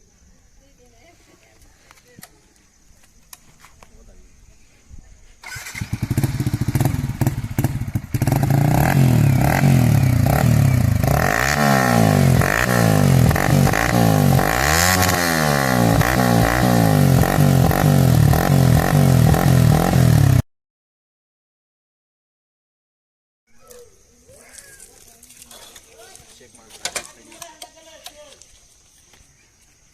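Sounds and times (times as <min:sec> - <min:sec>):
motorcycle engine idling and revving: 0:05.4 - 0:20.4.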